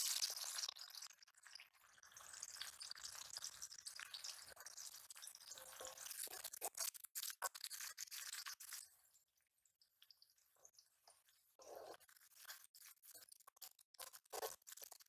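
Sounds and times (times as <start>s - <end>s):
onions sizzling in hot oil: 0.0s - 8.8s
wooden spatula scraping: 11.0s - 15.0s.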